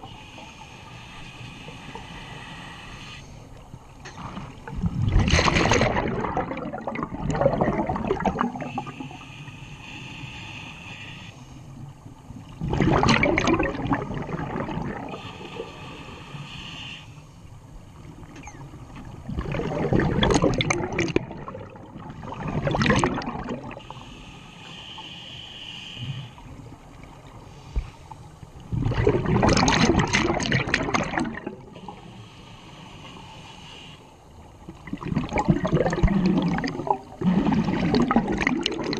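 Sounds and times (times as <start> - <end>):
regulator inhalation hiss: 0.0 - 3.5, 8.6 - 11.7, 15.1 - 17.4, 23.8 - 26.4, 31.7 - 34.2
exhaled bubbles rushing: 4.2 - 9.0, 12.5 - 15.2, 19.1 - 23.9, 28.7 - 31.7, 34.8 - 38.9.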